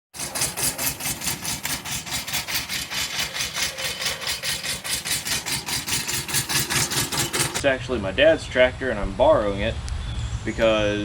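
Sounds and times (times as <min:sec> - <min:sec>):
diesel tractor engine idling: 0:02.0 - 0:07.6.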